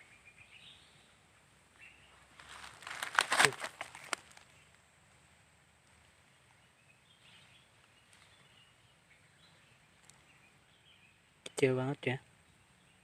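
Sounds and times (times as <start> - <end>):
faint bird chirps: 0.0 - 2.3, 6.0 - 13.0.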